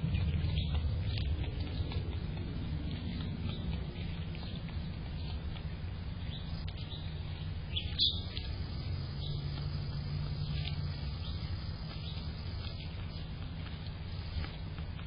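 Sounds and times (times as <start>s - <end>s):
low background rumble: 0.0s - 15.0s
small bird chirping: 2.9s - 14.6s.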